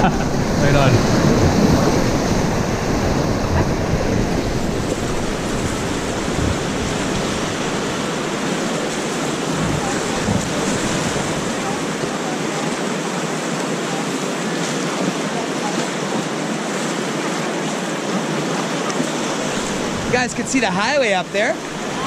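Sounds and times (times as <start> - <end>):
wind rumble on microphone: 0.0 - 12.1, 19.3 - 22.0
rushing whitewater: 0.0 - 22.0.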